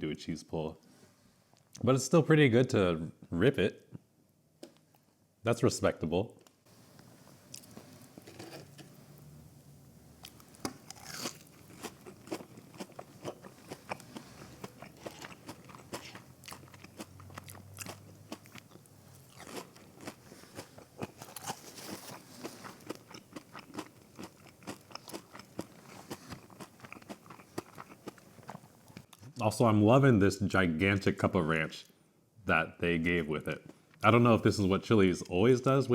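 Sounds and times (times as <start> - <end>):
chewing crunchy fried food: 6.7 - 9.4, 10.1 - 29.2.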